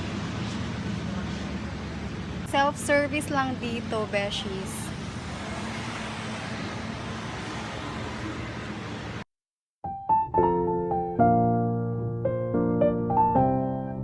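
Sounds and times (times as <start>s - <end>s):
piano background music: 9.8s - 14.0s.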